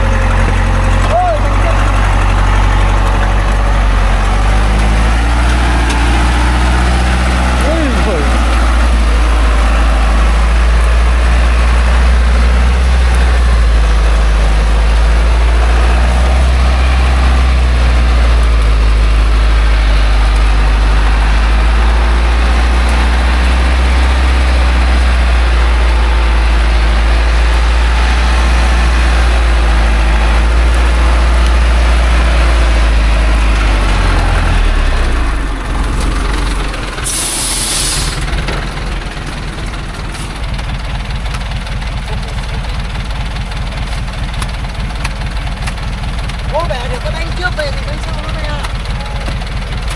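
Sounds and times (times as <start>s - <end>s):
truck diesel engine running: 0.0s - 49.9s
sharp hiss of air: 37.0s - 38.2s.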